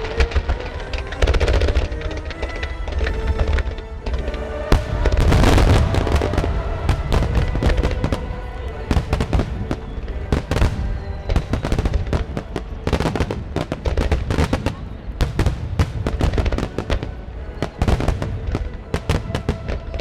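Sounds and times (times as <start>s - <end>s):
fireworks bursting and crackling: 0.0s - 20.0s
music playing: 0.0s - 20.0s
heavy firework bang: 4.7s - 17.0s.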